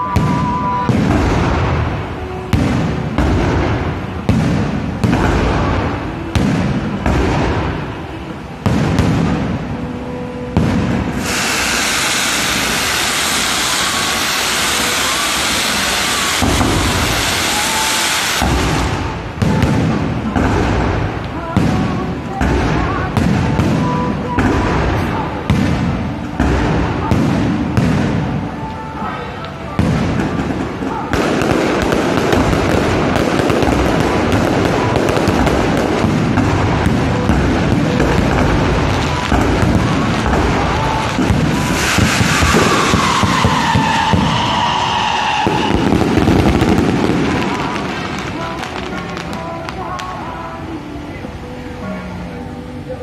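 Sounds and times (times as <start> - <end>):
deep firework boom: 0.0 - 8.0, 10.6 - 28.5, 29.8 - 48.4
fireworks crackling: 0.0 - 53.0.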